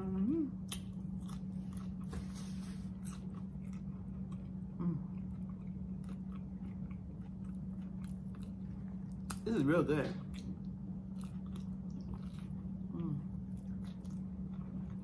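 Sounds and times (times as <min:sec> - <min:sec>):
person humming mm: 0:00.0 - 0:00.5, 0:04.8 - 0:05.1, 0:12.9 - 0:13.3
steady low hum: 0:00.0 - 0:15.0
person chewing: 0:00.6 - 0:09.5, 0:10.2 - 0:15.0.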